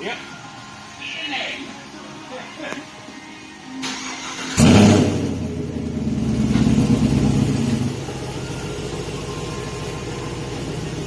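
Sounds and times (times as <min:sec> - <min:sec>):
car engine starting and idling: 0:03.8 - 0:11.0.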